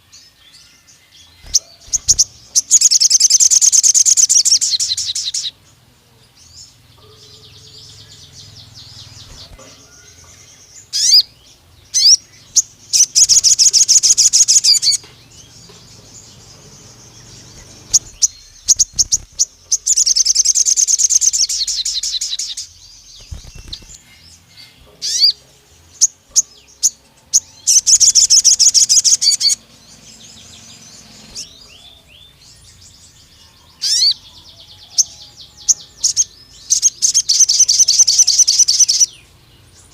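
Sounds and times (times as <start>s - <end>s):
sharp high bird chirps: 1.3s - 5.5s, 7.3s - 9.6s, 10.8s - 15.1s, 16.8s - 25.4s, 26.0s - 32.8s, 36.1s - 39.2s
songbird rapid trills: 1.4s - 5.5s, 16.6s - 25.3s.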